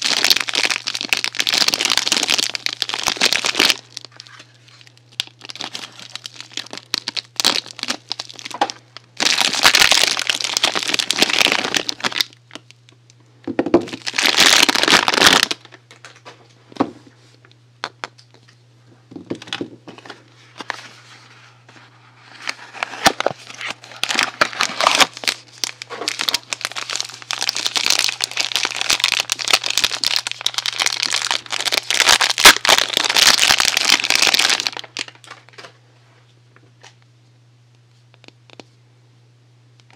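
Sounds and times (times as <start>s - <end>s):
packaging crinkling: 0.0s - 12.7s, 13.7s - 16.2s, 22.2s - 35.7s.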